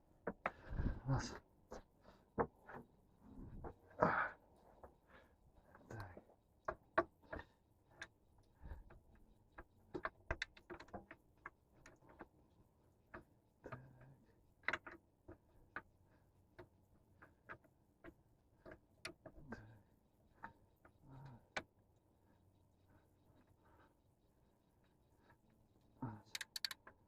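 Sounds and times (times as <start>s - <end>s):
hand tools clicking on metal: 26.3s - 27.0s.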